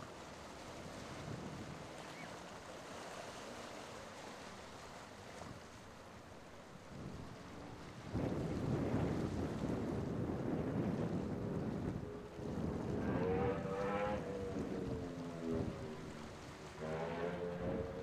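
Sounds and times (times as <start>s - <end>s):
wind: 0.0s - 18.0s
ocean surf: 1.9s - 18.0s
low rumble: 11.0s - 18.0s.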